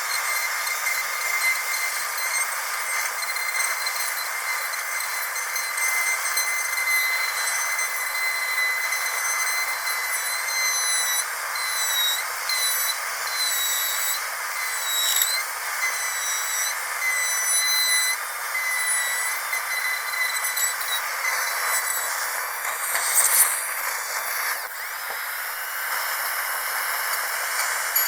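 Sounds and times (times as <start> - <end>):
dental drill whine: 0.0 - 28.0
air and water spray hiss: 21.0 - 28.0.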